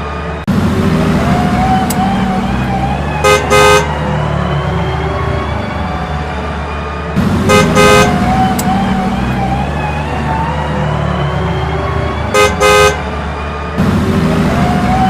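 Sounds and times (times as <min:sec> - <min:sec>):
vehicle engine running: 0:00.0 - 0:15.0
horn double toot: 0:03.2 - 0:03.9, 0:07.5 - 0:08.3, 0:12.3 - 0:13.0.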